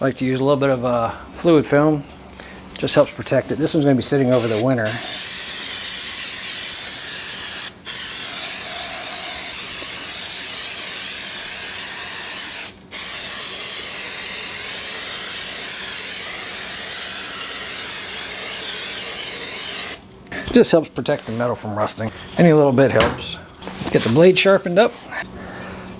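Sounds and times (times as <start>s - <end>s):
aerosol can spraying hiss: 4.3s - 20.0s.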